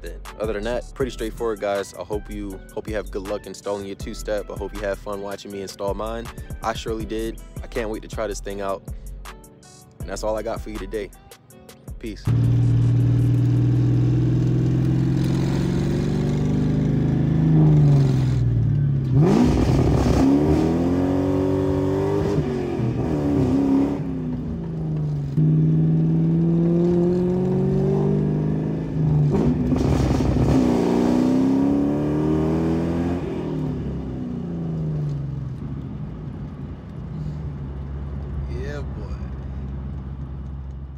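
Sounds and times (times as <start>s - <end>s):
car engine revving at full throttle: 12.3s - 40.8s.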